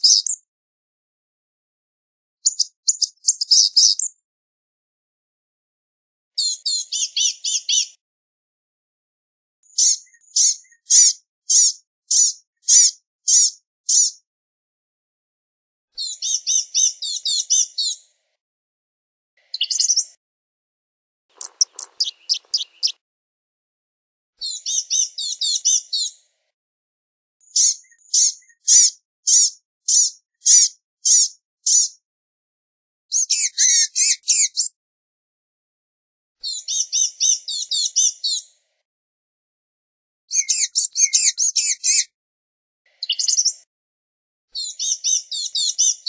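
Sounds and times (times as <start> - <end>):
bird singing high-pitched phrases: 0.0 - 0.5, 2.4 - 4.2, 6.4 - 8.0, 9.6 - 14.2, 16.0 - 18.0, 19.4 - 20.2, 21.4 - 23.0, 24.4 - 26.2, 27.4 - 32.0, 33.1 - 34.8, 36.4 - 38.5, 40.3 - 42.1, 42.9 - 43.6, 44.6 - 46.0.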